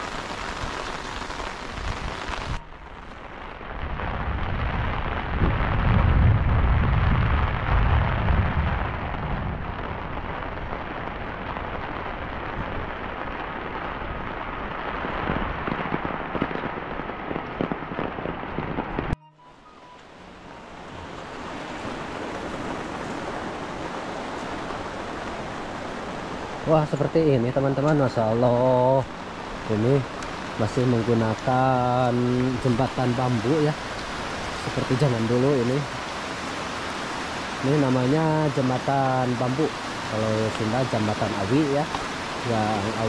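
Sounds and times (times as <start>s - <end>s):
heavy rain falling: 0.0s - 19.2s, 20.0s - 43.0s
deep low rumble: 3.8s - 10.2s.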